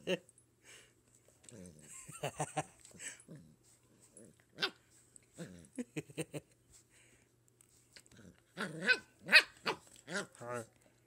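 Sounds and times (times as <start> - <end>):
puppy yipping and barking: 8.8 - 9.8.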